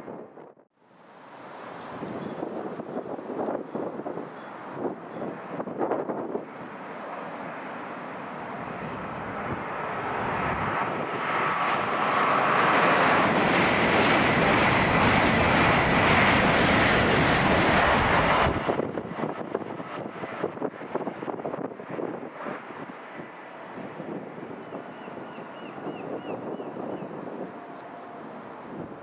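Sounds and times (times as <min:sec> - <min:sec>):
train passing at speed: 0:01.1 - 0:29.0.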